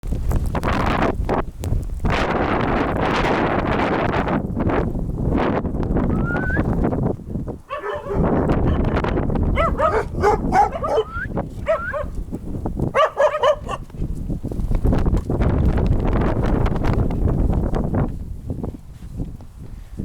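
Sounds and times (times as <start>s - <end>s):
wind noise on microphone: 0.0s - 20.0s
dog crying: 7.7s - 8.9s, 9.6s - 12.1s, 13.0s - 13.8s.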